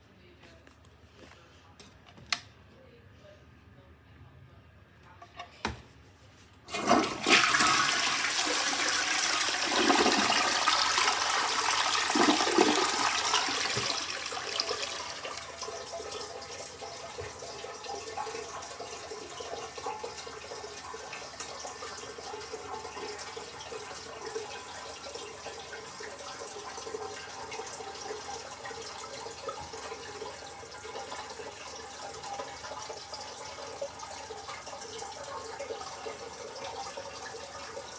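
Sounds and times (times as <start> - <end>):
toilet flush click: 6.7 - 37.9
toilet flushing water rush: 6.7 - 37.9
toilet tank refilling hiss: 6.7 - 37.9.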